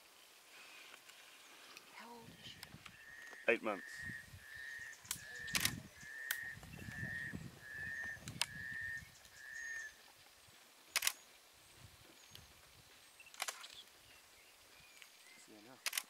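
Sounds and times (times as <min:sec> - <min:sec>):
bird calling short level notes: 0:02.9 - 0:09.9
camera shutters clicking: 0:05.1 - 0:06.4, 0:10.9 - 0:11.2, 0:13.3 - 0:13.8, 0:15.8 - 0:16.0.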